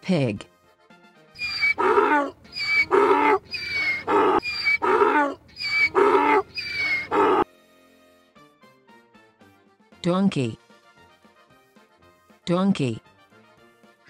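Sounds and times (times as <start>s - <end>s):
donkey braying: 1.4s - 7.4s.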